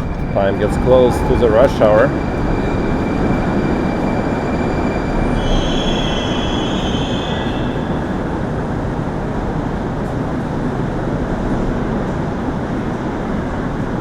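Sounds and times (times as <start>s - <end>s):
wheels squealing: 0.0s - 8.8s
train rumbling on rails: 0.0s - 14.0s.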